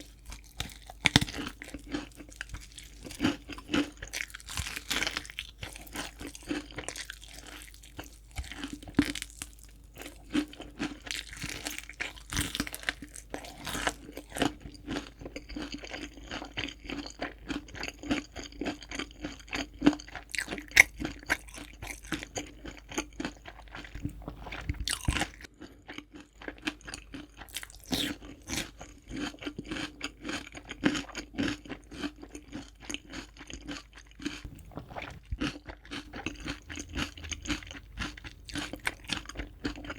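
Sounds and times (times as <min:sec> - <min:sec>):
fried chicken crunching: 0:00.0 - 0:39.9.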